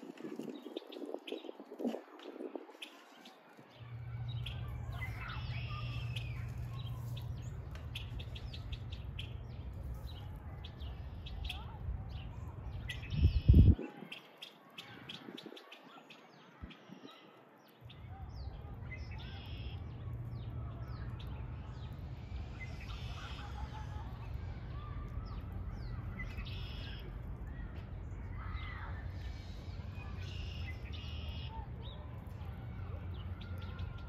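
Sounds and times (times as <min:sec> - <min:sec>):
small birds chirping: 0:00.1 - 0:34.0
steady low hum: 0:18.0 - 0:34.0.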